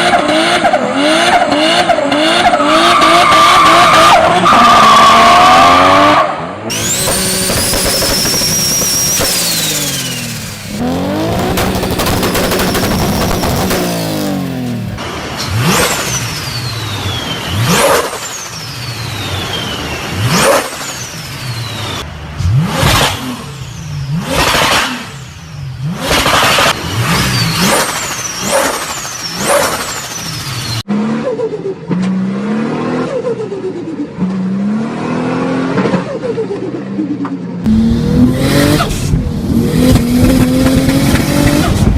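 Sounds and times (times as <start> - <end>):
car accelerating: 0.0 - 18.4, 37.6 - 41.9
car engine revving: 0.0 - 33.4, 37.6 - 41.9
turbo flutter and whistle: 6.7 - 10.3.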